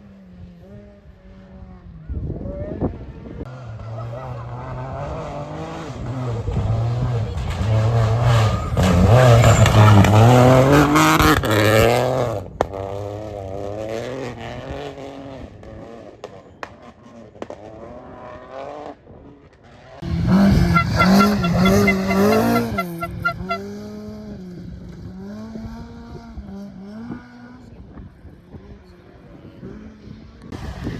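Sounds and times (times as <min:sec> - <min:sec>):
rally cars passing at full power: 0:00.0 - 0:30.9
engine revving through gear changes: 0:04.6 - 0:12.3, 0:20.0 - 0:23.7.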